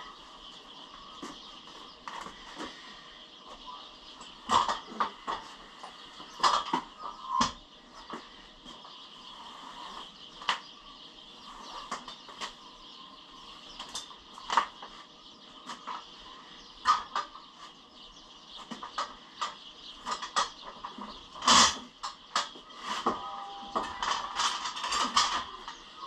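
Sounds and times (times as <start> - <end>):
machine dollies clicking and creaking: 18.7 - 26.0.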